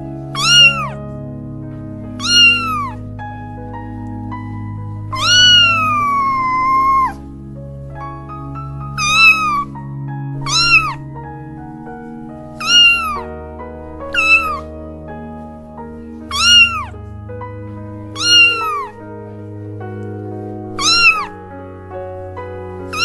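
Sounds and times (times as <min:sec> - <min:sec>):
soft background music: 0:00.0 - 0:23.0
cat meowing: 0:00.4 - 0:01.0, 0:02.2 - 0:03.0, 0:05.1 - 0:07.2, 0:09.0 - 0:09.7, 0:10.4 - 0:11.0, 0:12.6 - 0:13.2, 0:14.1 - 0:14.7, 0:16.3 - 0:17.0, 0:18.2 - 0:18.9, 0:20.8 - 0:21.4.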